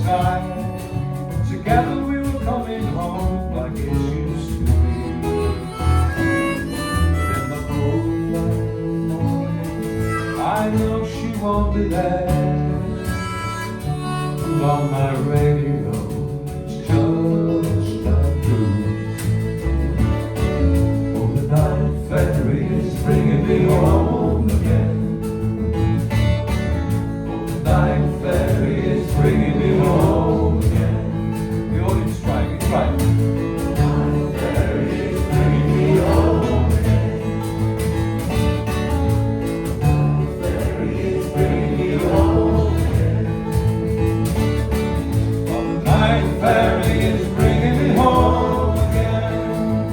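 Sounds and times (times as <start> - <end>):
acoustic guitar: 0.0 - 49.9
group singing: 21.1 - 25.8, 27.5 - 49.9.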